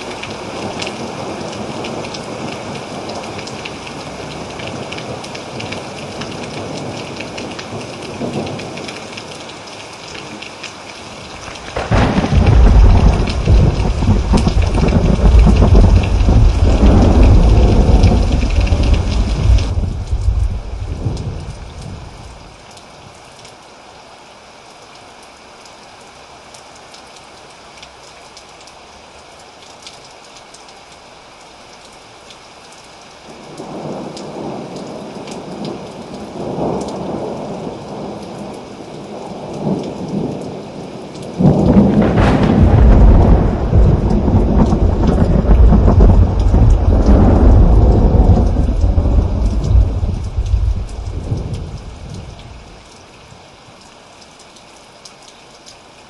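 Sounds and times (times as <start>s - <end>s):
rain falling: 0.0s - 56.0s
thunder rumbling: 11.3s - 22.5s, 41.4s - 52.8s
loud thunderclap: 11.5s - 22.0s, 41.4s - 52.0s.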